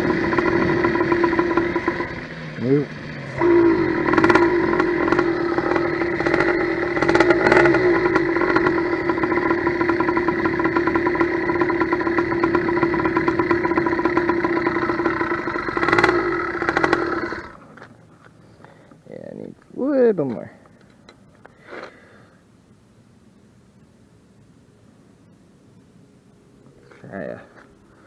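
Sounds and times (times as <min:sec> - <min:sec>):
two-stroke motorized bicycle engine: 0:00.0 - 0:17.9.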